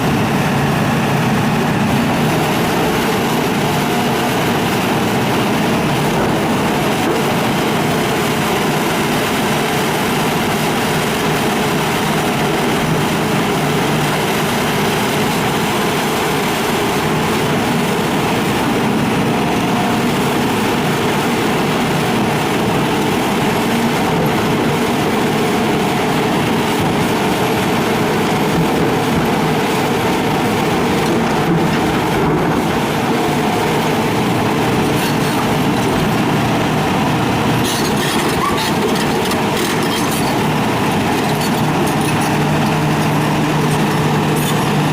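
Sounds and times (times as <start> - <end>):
excavator engine and hydraulics: 0.0 - 44.9.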